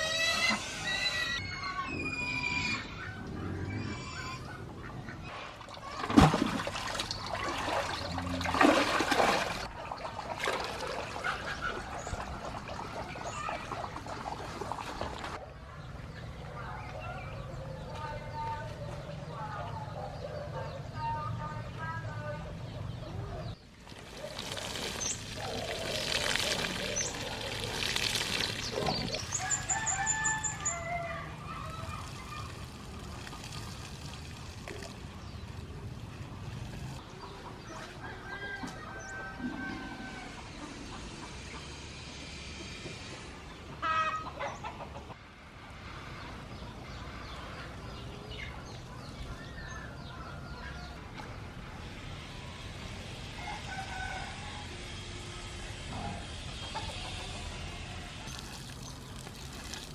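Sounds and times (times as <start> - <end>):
rooster crowing: 29.4 - 31.5, 53.3 - 55.0
chickens clucking: 42.6 - 45.2, 56.0 - 58.0
chickens calling: 43.5 - 45.2.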